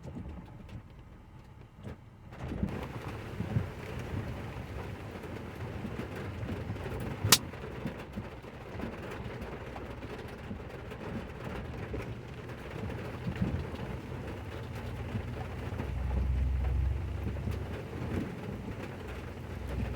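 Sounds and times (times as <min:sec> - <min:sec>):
pickup truck driving off-road: 0:01.9 - 0:19.9.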